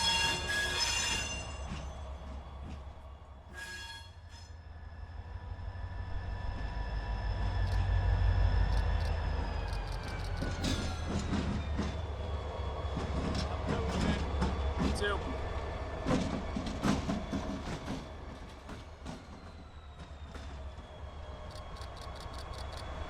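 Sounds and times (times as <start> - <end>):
train wheels clicking and clanking: 0.0 - 3.7, 8.6 - 23.0
locomotive rumble: 0.0 - 23.0
train wheel squeal: 0.0 - 23.0.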